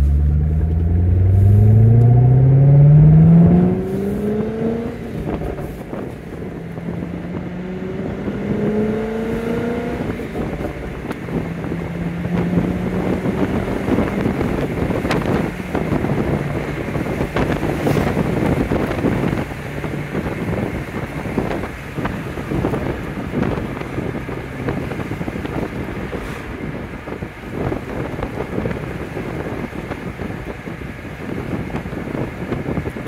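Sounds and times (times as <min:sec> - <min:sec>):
car engine driving: 0:00.0 - 0:33.0
wind noise: 0:00.0 - 0:33.0.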